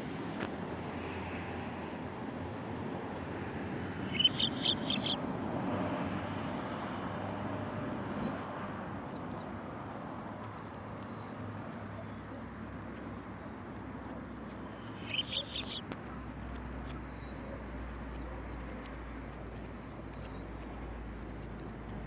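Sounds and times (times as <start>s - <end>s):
bird calling: 4.0s - 5.2s, 14.8s - 15.9s.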